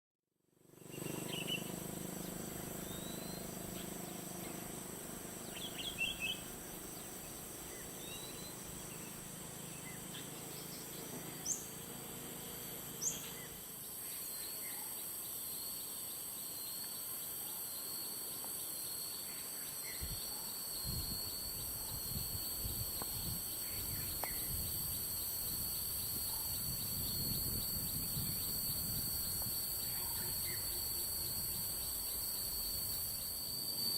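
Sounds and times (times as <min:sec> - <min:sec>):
high insect drone: 0:00.5 - 0:33.9
bird chirps: 0:00.8 - 0:04.8, 0:05.4 - 0:11.8, 0:18.9 - 0:33.9.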